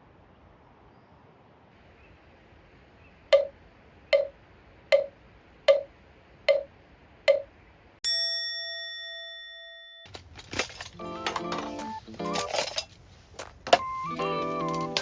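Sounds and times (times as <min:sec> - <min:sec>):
meditation bell ringing: 0:08.1 - 0:10.1.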